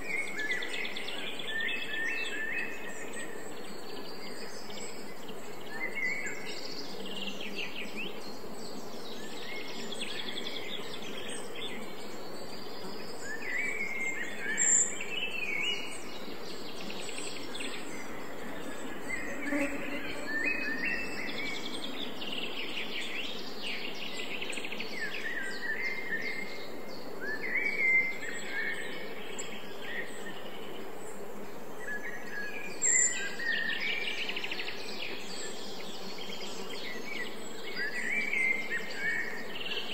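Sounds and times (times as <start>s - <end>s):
background hiss: 0.0s - 39.9s
songbirds chirping: 0.0s - 39.9s.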